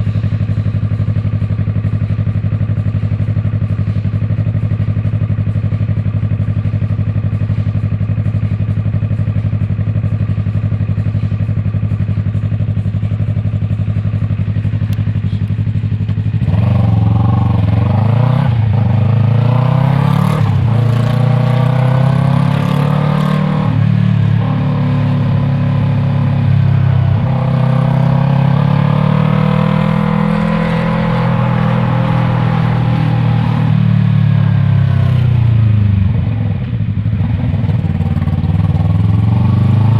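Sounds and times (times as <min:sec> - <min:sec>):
motorcycle engine idling: 0:00.0 - 0:20.8, 0:29.6 - 0:39.9
motorcycle accelerating through gears: 0:00.0 - 0:39.9.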